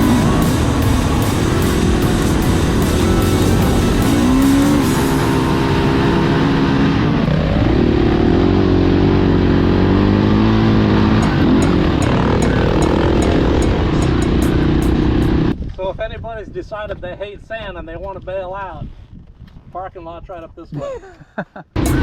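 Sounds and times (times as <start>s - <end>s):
dirt bike engine revving: 0.0s - 15.6s, 21.8s - 22.0s.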